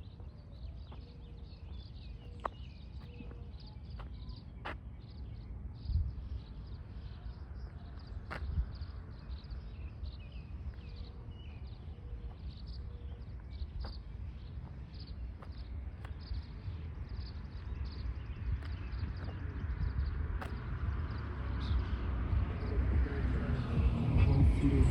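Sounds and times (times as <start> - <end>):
small birds chirping: 0.0 - 24.9
low rumble: 18.9 - 24.9.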